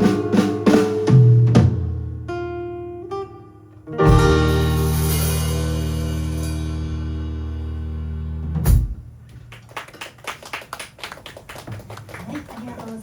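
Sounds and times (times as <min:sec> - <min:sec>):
band final chord with drums: 0:00.0 - 0:02.3, 0:03.9 - 0:09.0
sharp drum hit: 0:04.0 - 0:06.6
scattered applause: 0:09.4 - 0:13.0.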